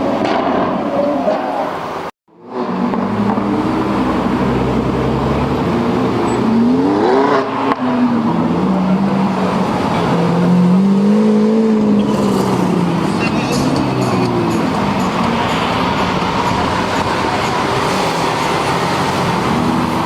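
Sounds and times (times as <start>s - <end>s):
car engine accelerating: 2.3s - 20.0s.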